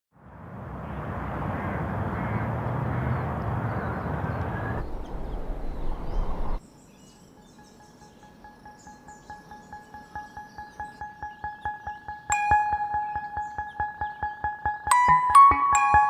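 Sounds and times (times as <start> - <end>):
low rumble: 3.4 - 6.6
chiming music: 7.6 - 16.0.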